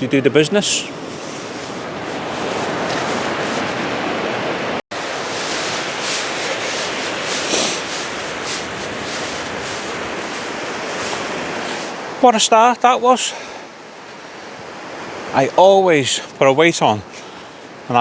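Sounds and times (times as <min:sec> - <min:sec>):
wind: 0:00.0 - 0:18.0
surf breaking: 0:00.6 - 0:15.6
handling rustles: 0:01.0 - 0:04.0, 0:05.1 - 0:12.0.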